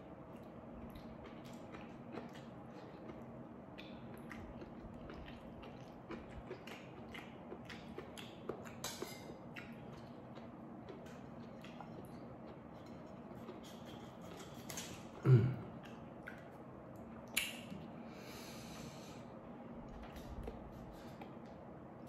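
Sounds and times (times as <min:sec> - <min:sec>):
chewing food: 0:00.0 - 0:17.9
wet mouth clicks and smacks: 0:15.8 - 0:17.8.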